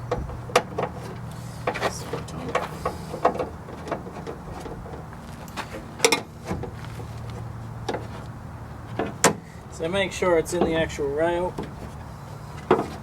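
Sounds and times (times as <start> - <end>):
car window regulator clicks and knocks: 0.0 - 8.3, 8.9 - 9.4, 12.6 - 13.0.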